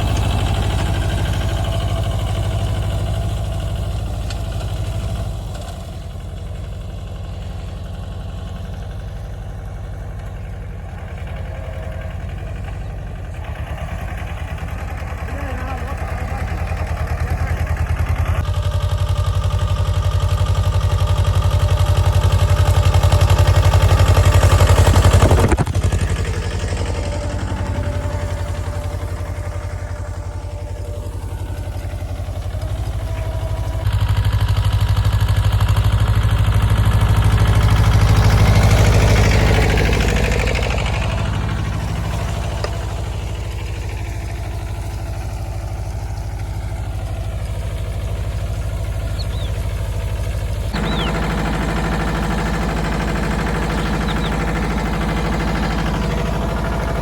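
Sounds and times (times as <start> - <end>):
tractor diesel engine revving: 0.0 - 57.0.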